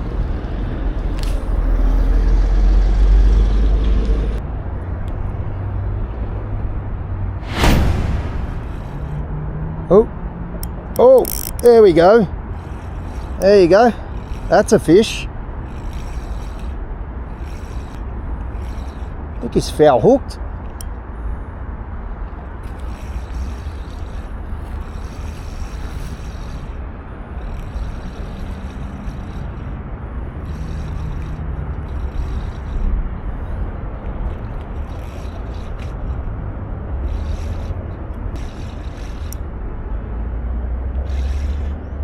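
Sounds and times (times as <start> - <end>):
spinning reel being wound: 8.5 - 9.2, 10.6 - 20.9, 22.6 - 39.5, 41.0 - 42.0.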